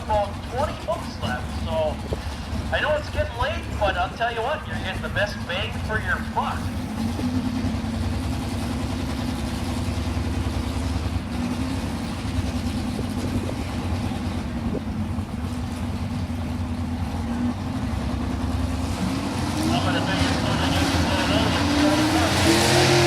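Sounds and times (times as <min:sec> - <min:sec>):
truck engine droning: 0:00.0 - 0:23.0.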